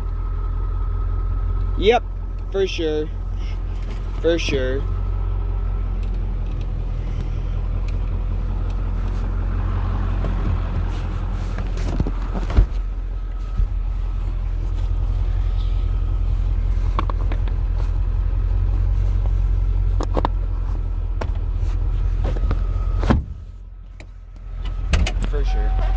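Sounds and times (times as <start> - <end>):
diesel truck engine drone: 0.0 - 25.9.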